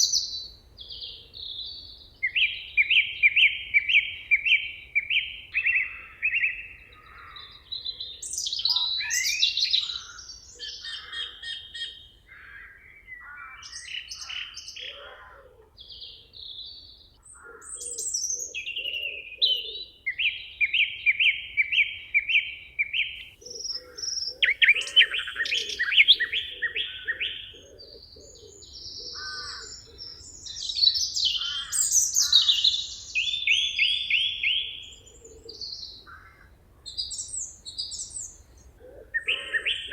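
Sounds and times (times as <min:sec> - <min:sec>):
songbirds singing: 0:00.0 - 0:39.9
low pulsing bird call: 0:22.9 - 0:39.9.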